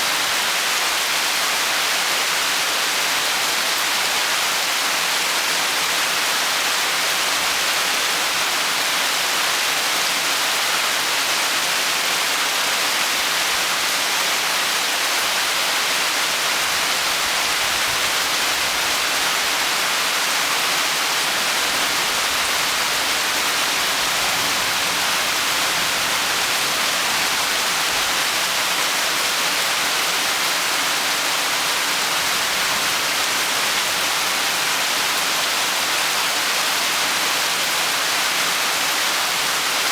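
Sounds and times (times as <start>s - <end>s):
heavy rain hissing: 15.8s - 35.6s.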